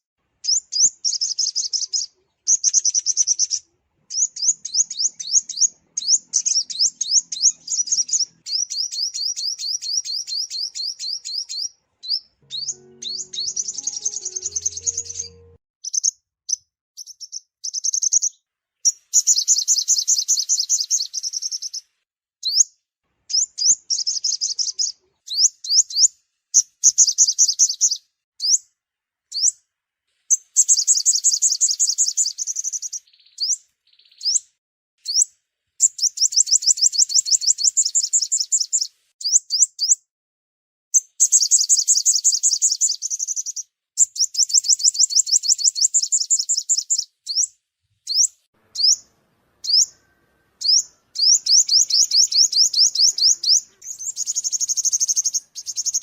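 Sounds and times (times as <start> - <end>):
bird chirps: 0.0 - 28.7, 29.3 - 29.6, 30.3 - 40.0, 41.0 - 56.0
sunbird trills: 0.5 - 16.0, 48.1 - 56.0.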